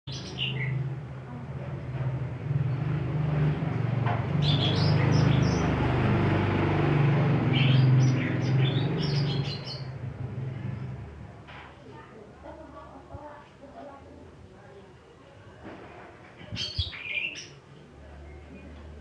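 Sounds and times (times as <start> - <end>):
bird chirping calls: 0.1 - 0.8, 4.4 - 5.8, 7.4 - 10.0, 16.5 - 17.6.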